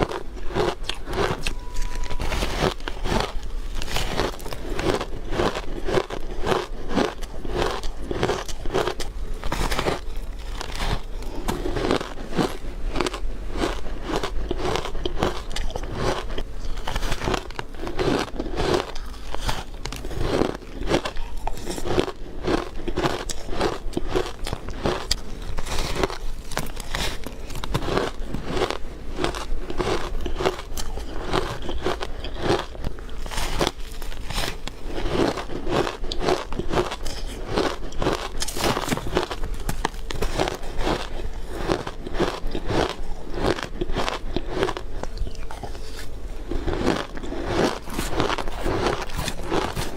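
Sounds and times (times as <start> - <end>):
ice crunching while chewed: 0.0 - 49.9.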